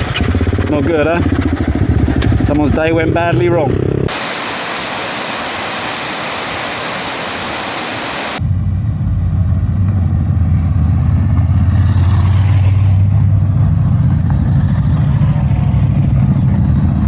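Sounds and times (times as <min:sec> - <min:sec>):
vehicle engine droning: 0:00.0 - 0:04.1, 0:08.4 - 0:17.0
steady rushing noise: 0:01.1 - 0:10.8.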